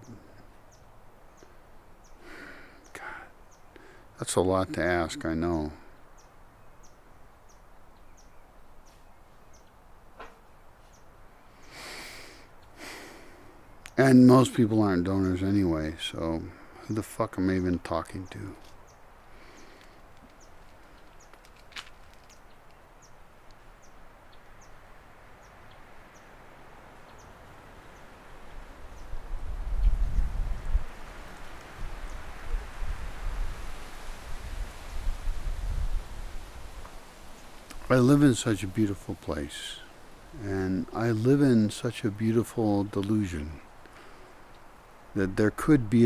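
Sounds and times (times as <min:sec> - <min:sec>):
soft outdoor hiss: 0:00.0 - 0:46.0
bird chirping: 0:02.8 - 0:09.8, 0:27.0 - 0:28.1
wind rumble on microphone: 0:28.6 - 0:37.0.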